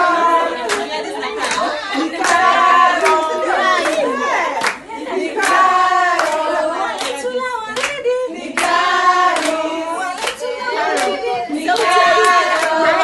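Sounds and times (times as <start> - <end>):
group of voices singing: 0.0 - 13.0
hand claps: 0.7 - 3.2, 3.8 - 5.6, 6.2 - 6.4, 7.8 - 8.0, 8.6 - 9.6, 10.2 - 12.9.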